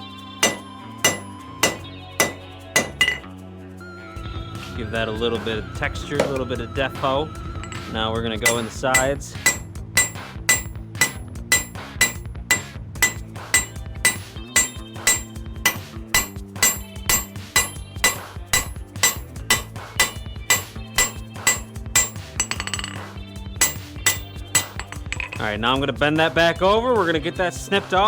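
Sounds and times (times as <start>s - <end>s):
bright anvil ring: 0.4s - 3.3s, 7.6s - 25.6s
hammer striking steel on anvil: 0.4s - 3.3s, 6.2s - 6.5s, 7.6s - 25.6s.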